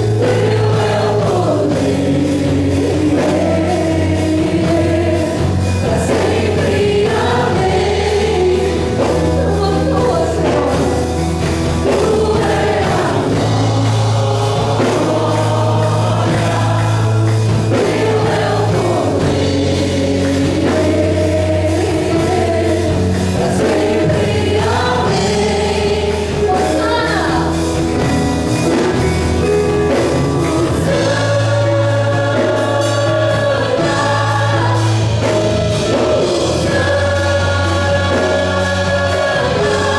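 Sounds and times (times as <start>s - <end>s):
band with bass and drums: 0.0s - 39.9s
voices singing together: 0.0s - 39.9s.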